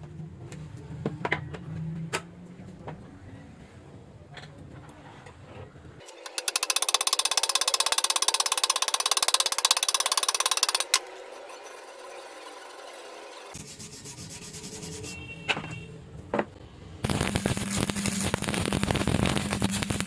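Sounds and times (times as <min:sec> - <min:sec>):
arc welding crackle: 0:17.0 - 0:20.0.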